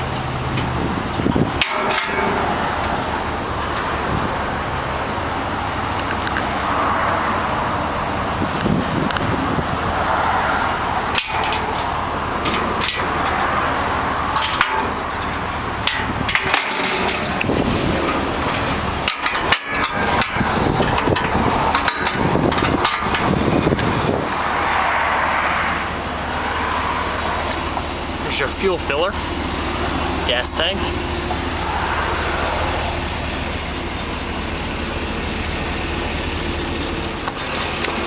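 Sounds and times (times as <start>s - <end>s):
engine idling: 0.0s - 38.0s
wind buffeting microphone: 0.4s - 1.6s, 6.8s - 11.1s, 17.2s - 19.1s, 19.9s - 27.8s.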